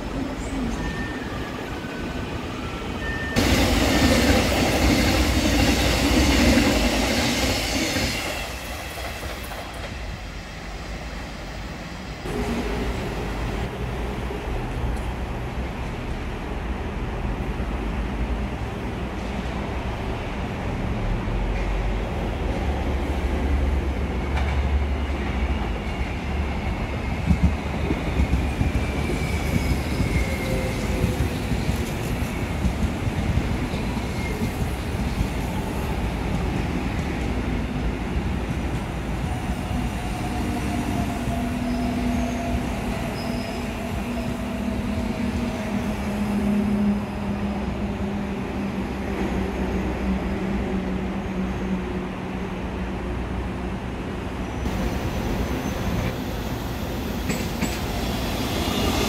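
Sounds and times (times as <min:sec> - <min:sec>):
electric train running on track: 0:00.0 - 0:11.0, 0:22.5 - 0:51.3, 0:52.2 - 0:59.0.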